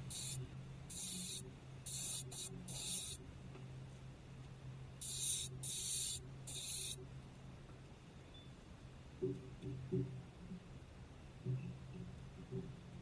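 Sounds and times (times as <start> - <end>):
aerosol spray bursts: 0.0 - 3.2, 5.0 - 7.0
steady low hum: 0.0 - 7.5.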